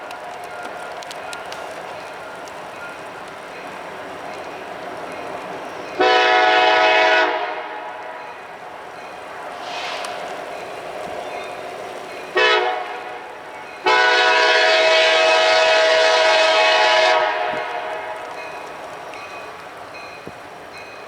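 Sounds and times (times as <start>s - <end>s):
locomotive air horn blasts: 6.0s - 8.2s, 12.4s - 18.3s.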